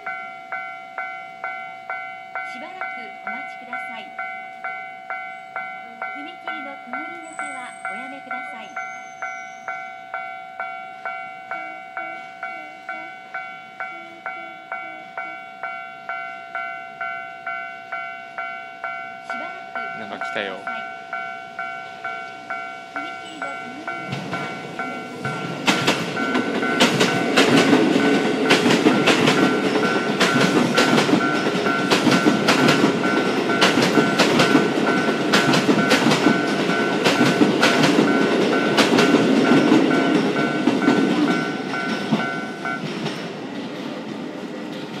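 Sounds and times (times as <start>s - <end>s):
level crossing warning bell: 0.0s - 44.6s
train wheels clacking over rail joints: 23.0s - 45.0s.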